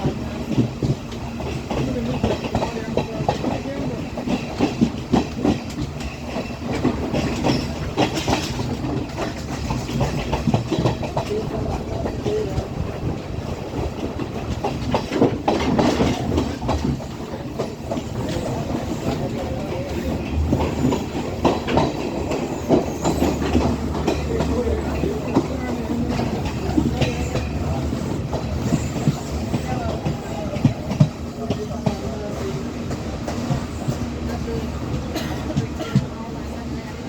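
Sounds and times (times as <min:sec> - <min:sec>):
train low rumble: 0:00.0 - 0:37.0
wheels clattering over rail joints: 0:00.0 - 0:37.0.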